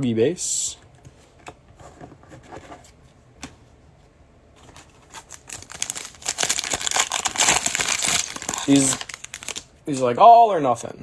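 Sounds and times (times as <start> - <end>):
trading cards shuffled by hand: 4.8 - 9.6.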